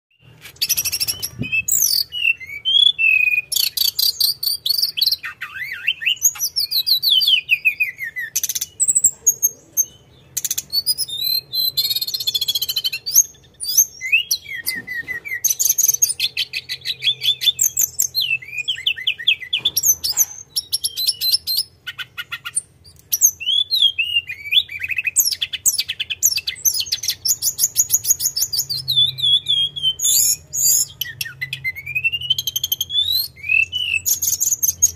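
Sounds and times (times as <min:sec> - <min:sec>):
songbird trilling and whistling: 0:00.1 - 0:34.9.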